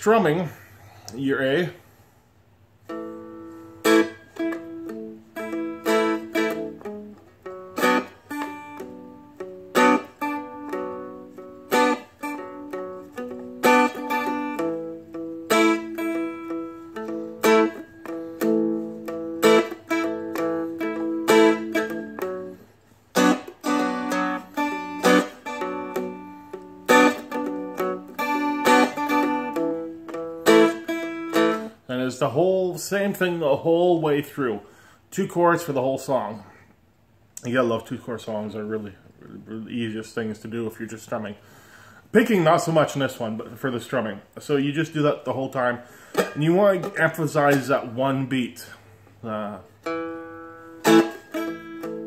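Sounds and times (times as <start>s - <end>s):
dulcimer strumming: 2.9s - 31.8s, 49.3s - 52.0s.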